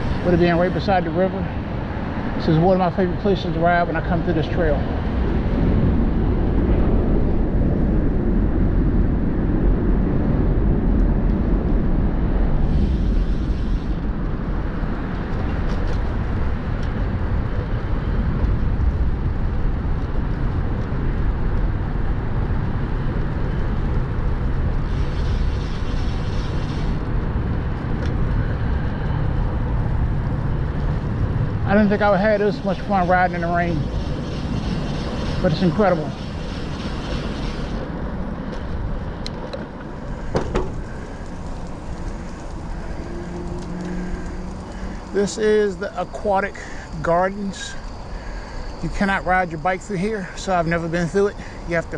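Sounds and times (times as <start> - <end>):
wind rumbling on microphone: 0.0 - 51.9
tyres hissing on wet surface: 24.8 - 27.0, 31.8 - 38.0, 40.1 - 51.9.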